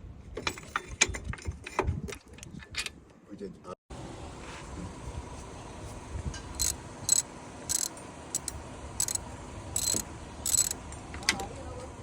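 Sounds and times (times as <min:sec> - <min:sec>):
high-pitched mechanical squeaks: 0:06.6 - 0:09.2, 0:09.8 - 0:10.8.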